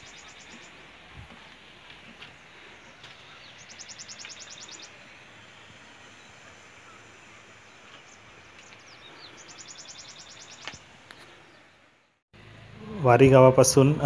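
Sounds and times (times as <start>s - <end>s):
bird chirps: 0.0s - 1.1s, 2.2s - 11.8s
faint outdoor background noise: 0.0s - 14.0s.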